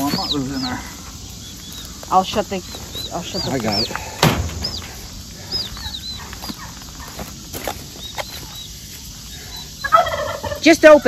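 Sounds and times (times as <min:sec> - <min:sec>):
small birds peeping: 0:00.0 - 0:11.0
wire-mesh cage door knock: 0:04.2 - 0:05.1.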